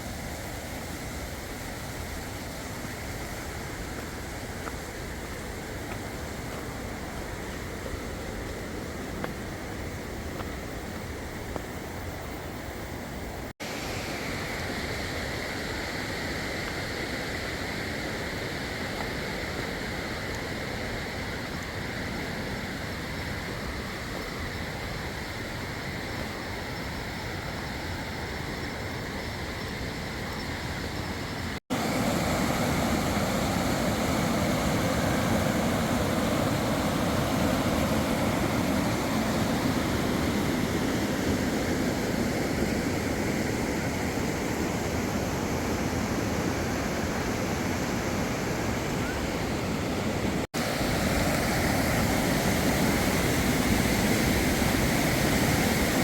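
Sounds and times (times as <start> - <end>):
flowing water rushing: 0.0 - 11.5, 30.0 - 56.0.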